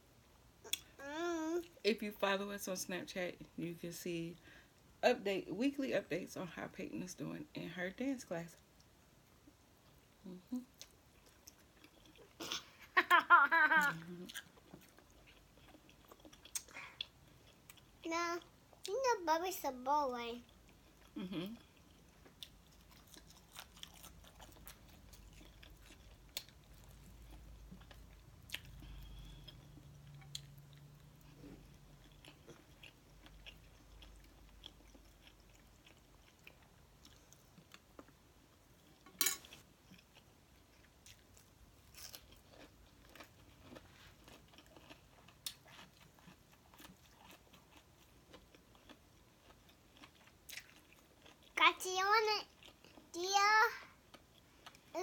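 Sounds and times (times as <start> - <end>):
chewing crispy food: 9.8 - 12.7, 13.8 - 18.9, 20.4 - 51.8, 52.4 - 53.2, 54.0 - 55.0.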